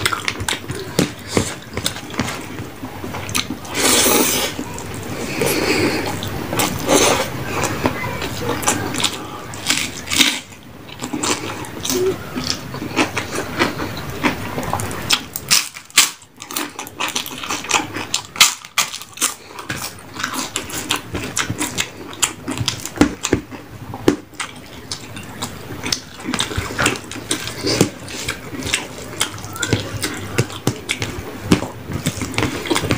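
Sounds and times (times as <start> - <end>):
chewing: 0.0 - 32.9
crunching fried food: 0.0 - 32.9.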